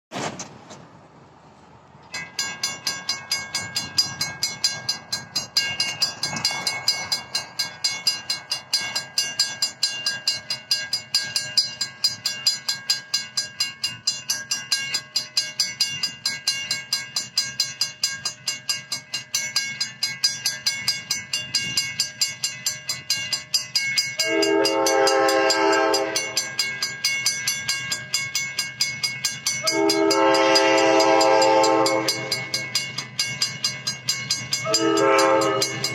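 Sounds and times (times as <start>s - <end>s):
railroad crossing bell ringing: 2.0s - 35.9s
locomotive air horn: 24.2s - 26.4s, 29.6s - 32.5s, 34.6s - 35.8s.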